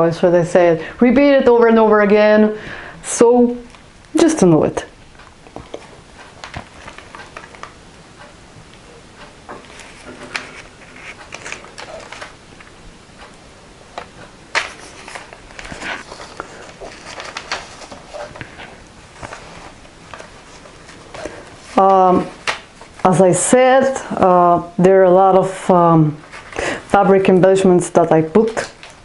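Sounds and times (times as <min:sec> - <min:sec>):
thick paper pages rustling: 0:05.5 - 0:07.8, 0:09.6 - 0:12.7, 0:14.0 - 0:23.1, 0:26.2 - 0:26.6.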